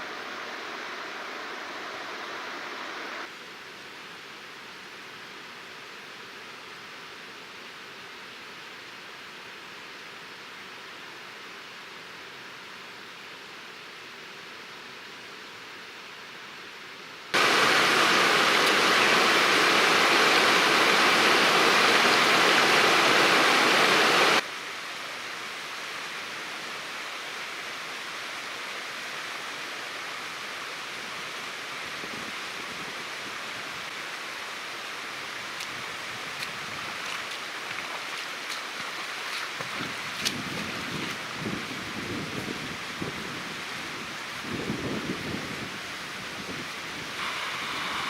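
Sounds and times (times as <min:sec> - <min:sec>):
rushing river water: 0:17.3 - 0:44.4, 0:45.8 - 0:48.0.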